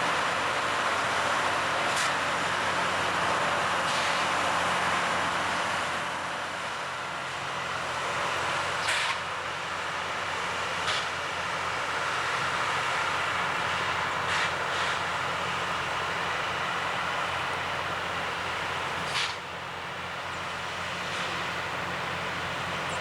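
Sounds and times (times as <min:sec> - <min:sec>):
rail grinder machine noise: 0:00.0 - 0:23.0.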